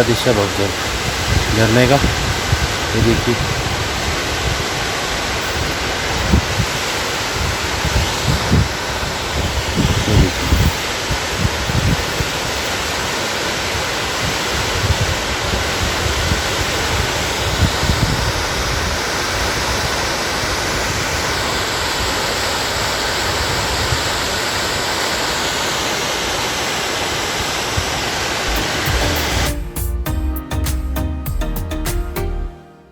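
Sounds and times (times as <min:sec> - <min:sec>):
waterfall rushing: 0:00.0 - 0:29.8
music: 0:28.5 - 0:32.9.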